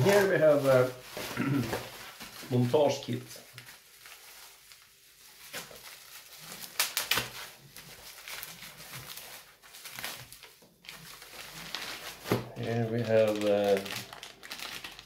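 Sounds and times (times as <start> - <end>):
plastic packaging rustling: 0.0 - 15.0
sharp crackles: 5.5 - 15.0.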